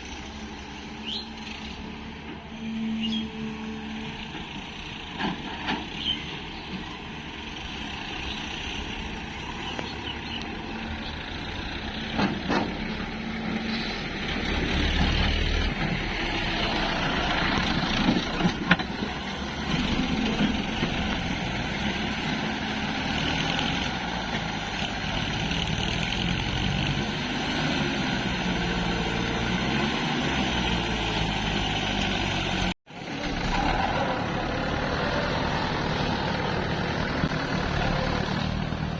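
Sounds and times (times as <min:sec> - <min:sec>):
diesel engines droning: 0:00.0 - 0:38.9.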